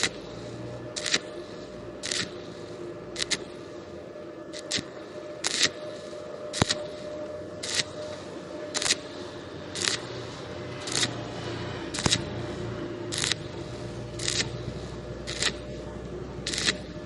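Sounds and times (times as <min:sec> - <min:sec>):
welding arc bursts: 0:00.0 - 0:00.2, 0:01.0 - 0:01.4, 0:02.0 - 0:02.4, 0:03.2 - 0:03.5, 0:04.5 - 0:05.8, 0:06.5 - 0:08.0, 0:08.7 - 0:09.1, 0:09.7 - 0:10.1, 0:10.8 - 0:12.5, 0:13.1 - 0:17.0
welding machine hum: 0:00.0 - 0:17.0.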